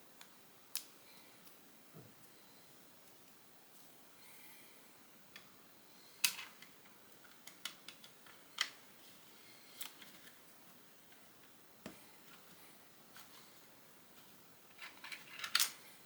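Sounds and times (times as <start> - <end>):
plastic bricks clicking: 14.8 - 15.8.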